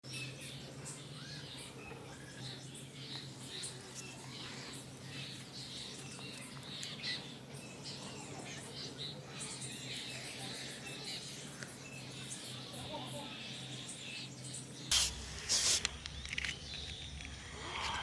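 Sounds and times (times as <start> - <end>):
steady low hum: 14.7 - 18.0.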